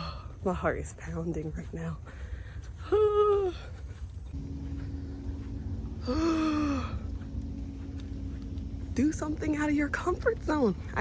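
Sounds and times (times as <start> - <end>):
faint steady hum: 2.0 - 11.0
low rumble: 3.8 - 11.0.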